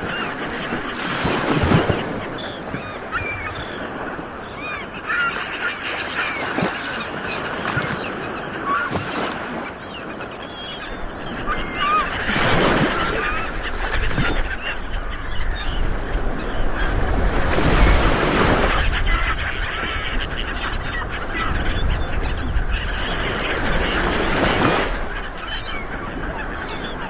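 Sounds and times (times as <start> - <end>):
ocean waves breaking: 0.0 - 27.0.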